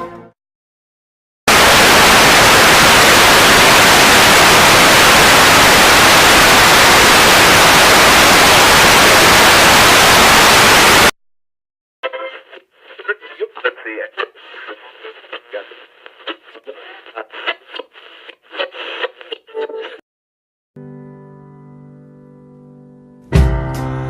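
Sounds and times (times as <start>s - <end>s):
loud static hiss: 1.5s - 11.1s, 12.2s - 20.0s.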